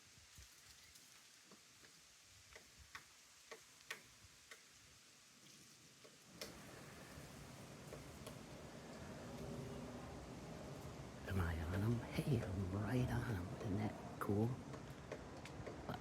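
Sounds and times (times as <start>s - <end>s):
woodpecker pecking wood: 11.7s - 15.9s.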